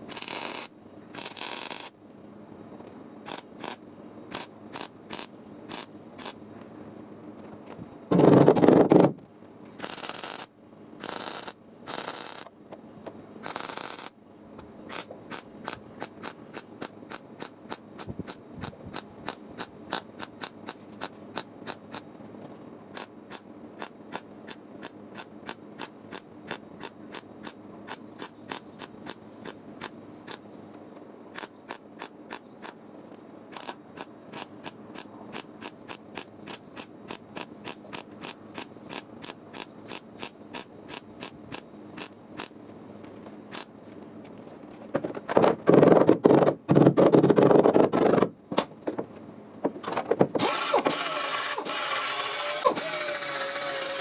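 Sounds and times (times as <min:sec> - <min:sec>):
ratchet-like mechanical clicking: 0:00.0 - 0:01.9, 0:03.2 - 0:06.4, 0:09.8 - 0:12.5, 0:13.4 - 0:14.1, 0:14.9 - 0:22.0, 0:22.9 - 0:30.4, 0:31.3 - 0:32.8, 0:33.5 - 0:42.5, 0:50.4 - 0:54.0
short bursts of hiss: 0:03.3 - 0:06.4.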